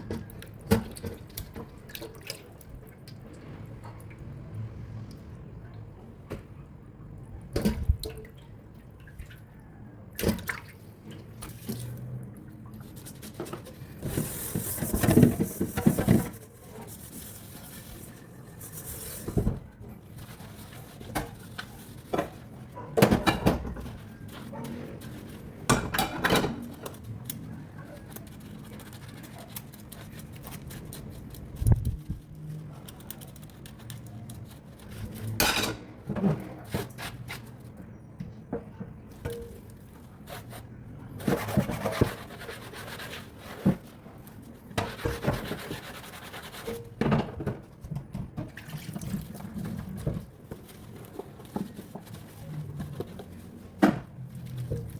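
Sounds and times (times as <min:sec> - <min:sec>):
water splashing in a sink: 0:00.2 - 0:04.4, 0:07.5 - 0:22.5, 0:48.2 - 0:50.5.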